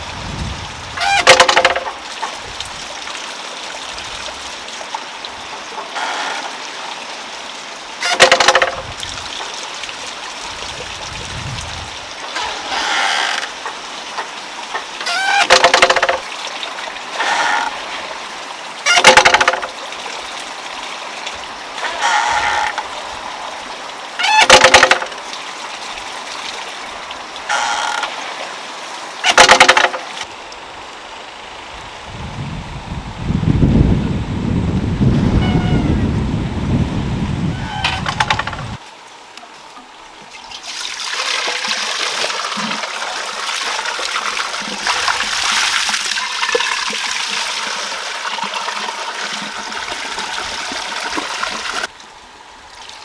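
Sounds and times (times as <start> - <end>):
geese honking: 1.0 - 1.4, 35.3 - 36.1.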